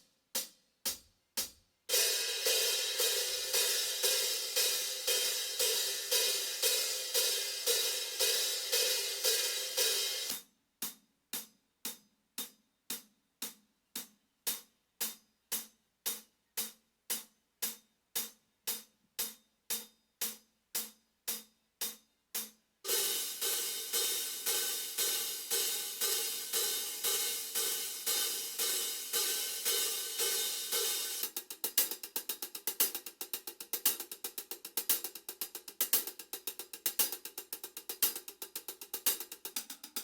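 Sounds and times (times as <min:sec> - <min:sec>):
hi-hat cymbal beat: 0:00.0 - 0:40.0.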